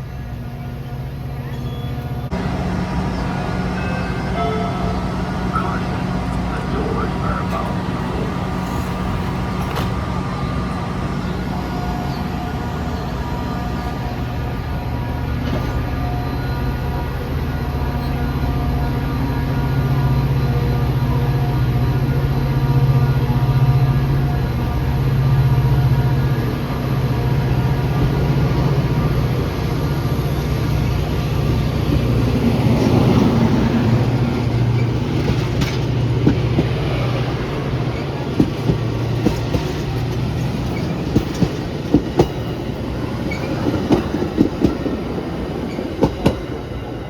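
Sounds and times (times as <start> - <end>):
diesel train engine droning: 0.0 - 47.0
wheels clicking over rail joints: 2.3 - 10.3, 30.4 - 46.7.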